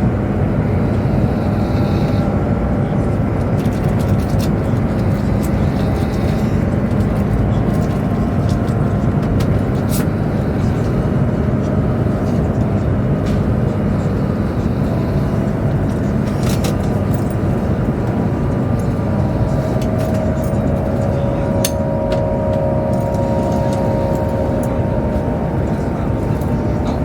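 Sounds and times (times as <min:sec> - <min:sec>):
faint held whine: 0:00.0 - 0:27.0
train cabin rumble and rush: 0:00.0 - 0:27.0.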